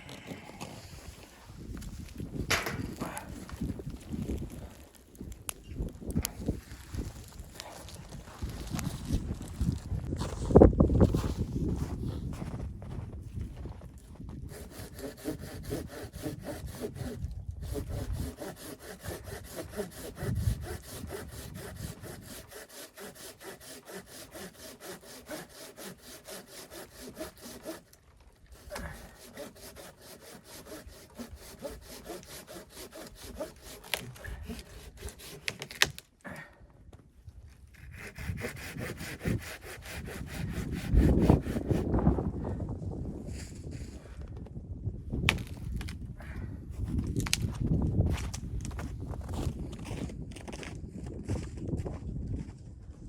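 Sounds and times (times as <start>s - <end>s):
hand saw cutting wood: 14.4s - 36.0s, 37.7s - 42.0s.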